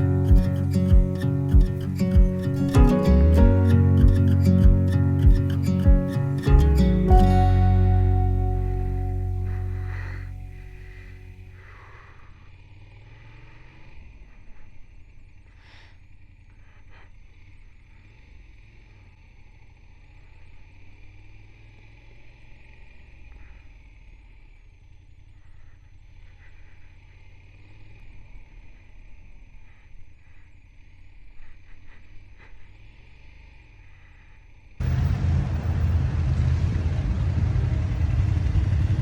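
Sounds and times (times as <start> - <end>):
motorcycle engine running: 0.0 - 11.6, 34.8 - 39.0
wind rush on microphone: 34.8 - 39.0.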